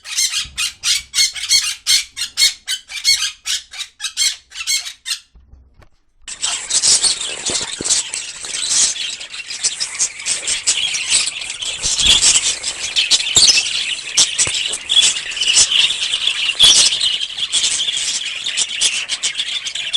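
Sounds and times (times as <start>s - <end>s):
parrot chirping and squealing: 0.0s - 5.3s, 6.3s - 17.9s
parrot squawks: 0.0s - 5.3s.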